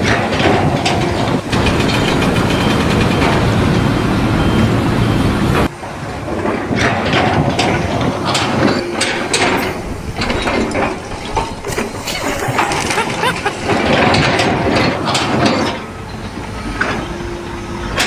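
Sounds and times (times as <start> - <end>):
heavy engine running: 0.0 - 5.7.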